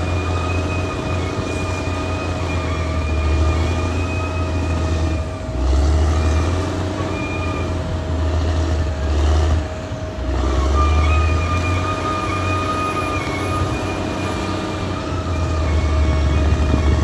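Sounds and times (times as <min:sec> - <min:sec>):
bulldozer diesel engine rumbling: 0:00.0 - 0:17.0
high whine: 0:00.0 - 0:17.0.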